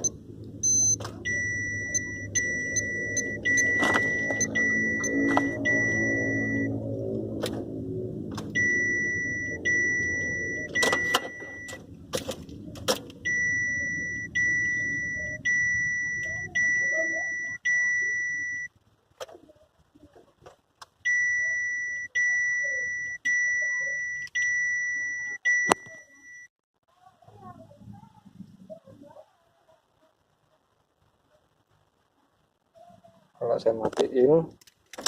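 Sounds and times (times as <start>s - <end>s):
high warning beep: 0.0s - 6.9s, 8.5s - 11.8s, 13.2s - 18.7s, 21.1s - 26.5s
low car rumble: 0.0s - 33.4s.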